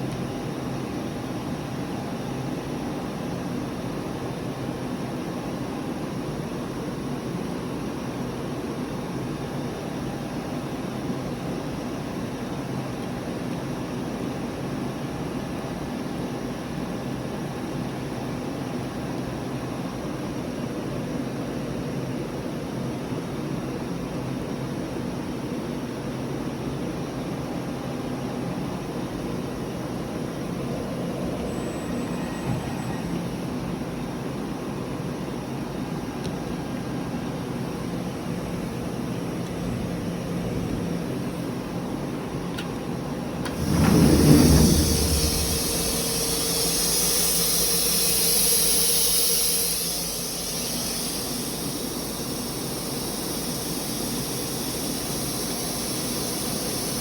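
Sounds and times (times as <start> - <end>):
machinery humming: 43.1 - 57.0
loud hiss: 43.4 - 57.0.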